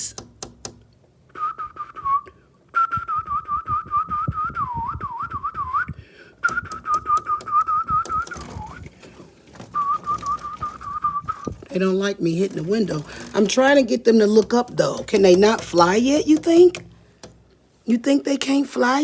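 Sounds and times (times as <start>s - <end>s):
taps on window glass: 0.0s - 1.0s, 6.4s - 9.0s, 14.2s - 17.6s
person whistling: 1.3s - 8.9s, 9.7s - 11.6s.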